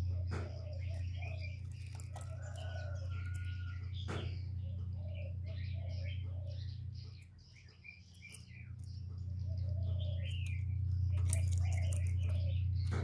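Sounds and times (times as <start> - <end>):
small birds chirping: 0.0 - 13.0
steady low hum: 0.0 - 13.0
clicks against wire cage: 1.5 - 4.4, 10.3 - 13.0.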